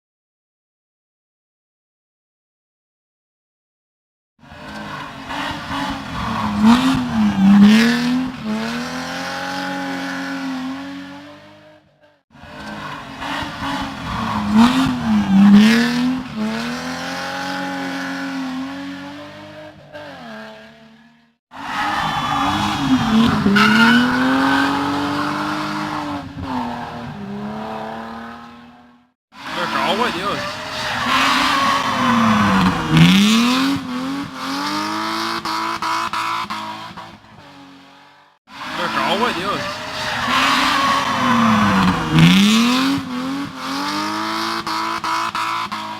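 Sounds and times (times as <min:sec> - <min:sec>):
race car engines revving: 0:04.4 - 0:45.9
tyre squeal: 0:21.5 - 0:26.8, 0:30.3 - 0:33.6, 0:39.5 - 0:42.8.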